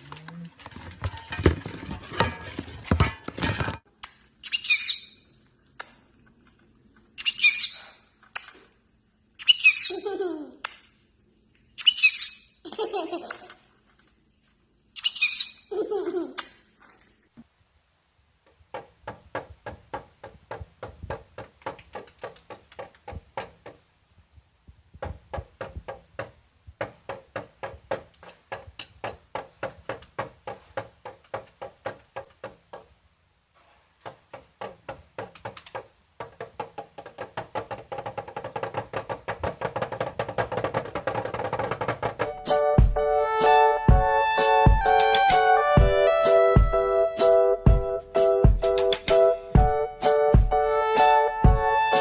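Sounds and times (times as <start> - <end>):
wood-block percussion knocks: 25.0 - 32.9, 34.1 - 43.0.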